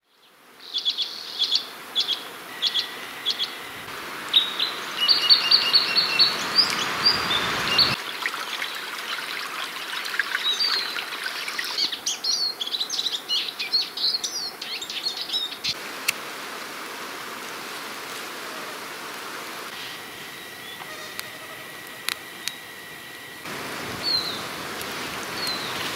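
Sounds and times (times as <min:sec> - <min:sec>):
faint steady hiss: 0:00.0 - 0:25.9
small songbirds chirping: 0:00.1 - 0:08.0, 0:10.3 - 0:15.8, 0:24.0 - 0:25.9
rushing noise: 0:03.8 - 0:08.0.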